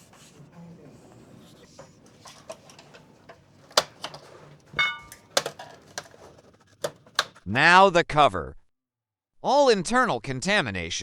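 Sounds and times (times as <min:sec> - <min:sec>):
plastic parts clicking and tapping: 0:00.0 - 0:07.5.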